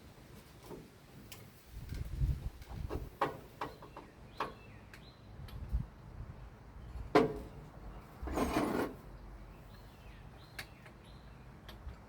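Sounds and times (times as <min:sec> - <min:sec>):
short scraping rasp: 0:08.2 - 0:09.0.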